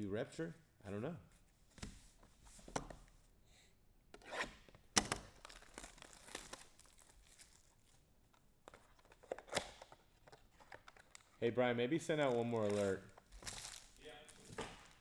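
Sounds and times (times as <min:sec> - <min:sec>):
card pack wrappers tearing: 0:05.2 - 0:07.8, 0:12.1 - 0:15.0.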